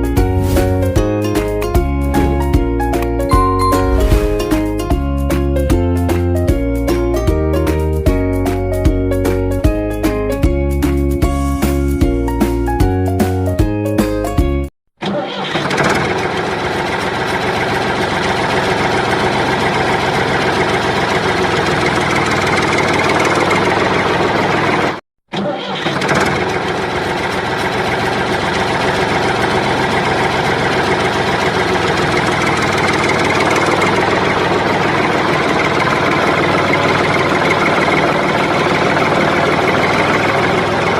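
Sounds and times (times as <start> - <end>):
engine running: 0.0 - 5.4, 15.6 - 25.0, 26.0 - 40.9.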